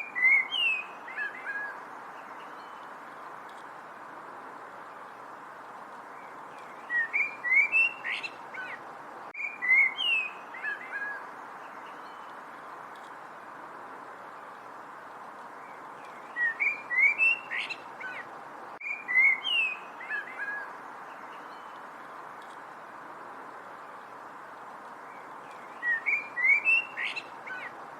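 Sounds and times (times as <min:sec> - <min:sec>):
songbird whistled chirps: 0:00.0 - 0:02.9, 0:06.6 - 0:08.8, 0:09.4 - 0:11.2, 0:15.7 - 0:18.2, 0:18.8 - 0:20.7, 0:25.5 - 0:27.7.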